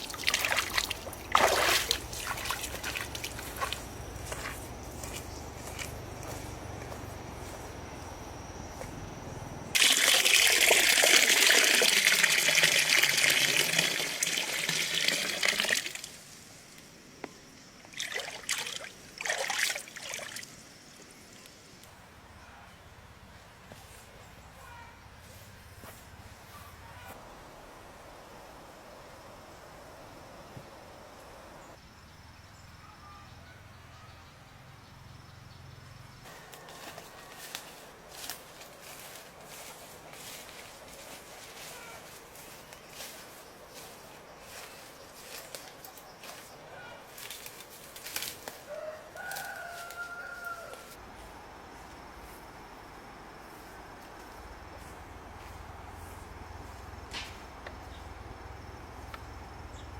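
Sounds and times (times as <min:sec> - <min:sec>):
water pouring and splashing: 0:00.0 - 0:03.8, 0:09.8 - 0:16.5, 0:17.8 - 0:20.6.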